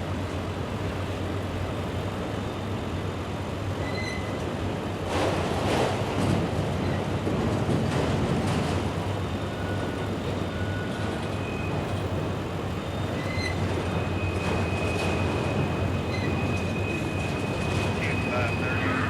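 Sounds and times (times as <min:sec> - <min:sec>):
train wheels rumbling on rail: 0:00.0 - 0:19.0
faint high squeal: 0:03.8 - 0:04.4, 0:12.8 - 0:19.0.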